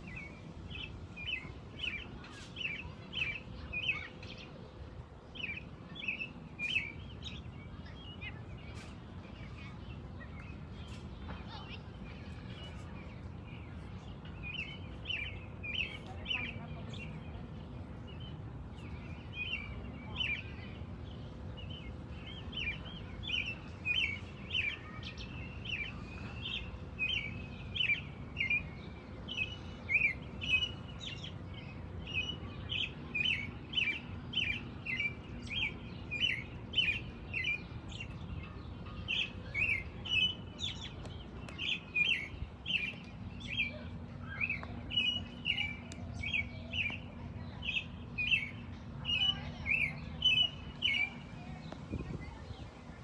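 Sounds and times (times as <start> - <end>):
robin chirping: 18.0 - 52.6.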